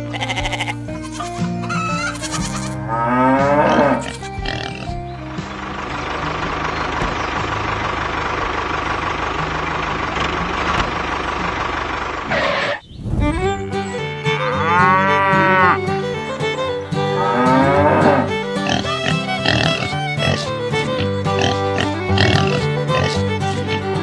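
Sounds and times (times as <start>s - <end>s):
background music: 0.0s - 11.6s, 13.3s - 24.0s
cow mooing: 2.0s - 5.0s, 13.5s - 15.8s, 17.1s - 24.0s.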